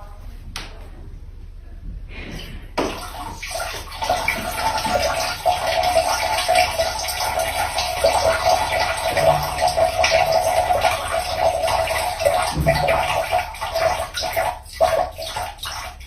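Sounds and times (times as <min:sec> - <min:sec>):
cat urinating into toilet water: 0:02.2 - 0:16.0.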